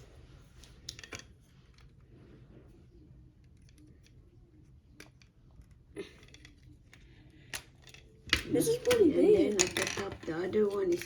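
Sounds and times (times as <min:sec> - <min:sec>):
plastic pieces clicking: 0:04.9 - 0:11.0.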